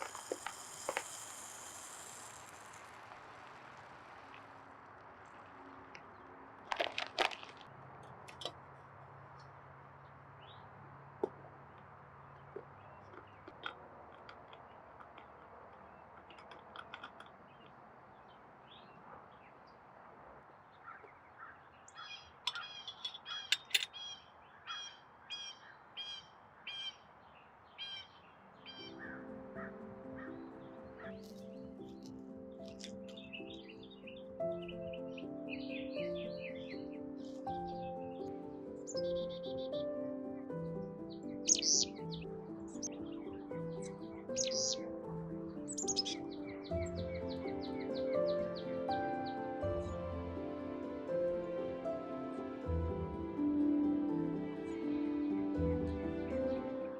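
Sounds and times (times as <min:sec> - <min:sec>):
cluster of clicks: 0:00.0 - 0:10.5, 0:11.1 - 0:19.3, 0:21.9 - 0:24.1, 0:31.0 - 0:33.8, 0:41.5 - 0:43.0, 0:43.8 - 0:44.8, 0:45.6 - 0:48.2
birds chirping: 0:00.0 - 0:56.9
sharp bird call notes: 0:20.8 - 0:27.1, 0:41.4 - 0:43.0, 0:43.9 - 0:44.9, 0:45.6 - 0:46.8.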